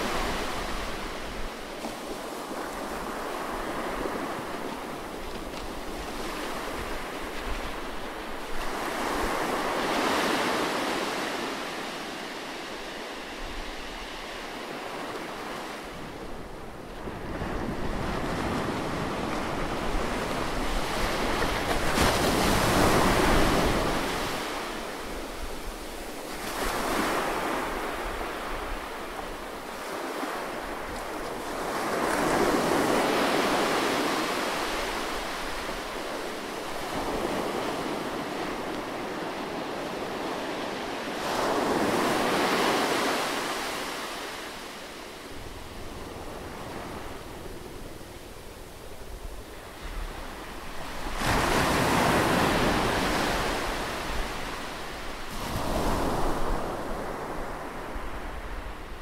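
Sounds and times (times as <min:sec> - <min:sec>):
ocean surf breaking on beach: 0:00.0 - 0:59.0.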